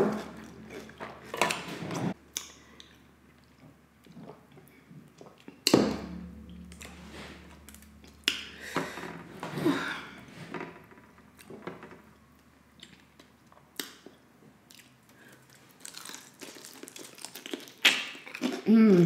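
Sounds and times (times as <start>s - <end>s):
chewing crispy fried chicken: 12.8s - 18.7s.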